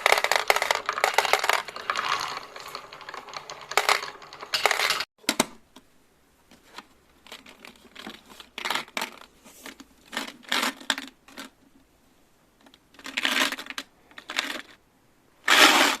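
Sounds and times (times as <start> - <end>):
marbles rattling along a track: 0.0 - 5.1.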